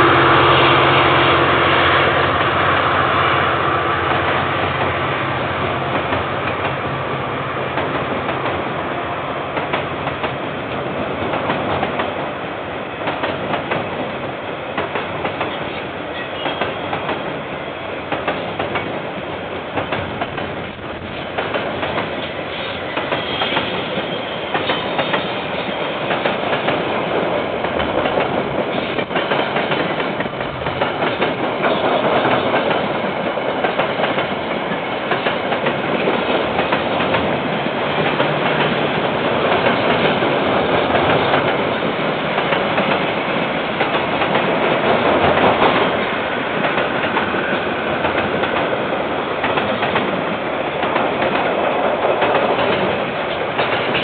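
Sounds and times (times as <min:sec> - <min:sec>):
freight train wagons rumbling past: 0:00.0 - 0:54.0.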